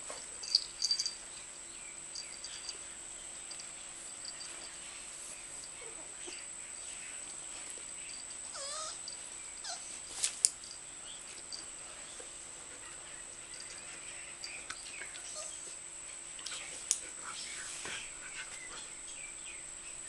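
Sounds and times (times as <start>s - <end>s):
steady high-pitched hum: 0.0s - 20.0s
puppy whimpering: 5.8s - 6.5s, 8.5s - 10.0s.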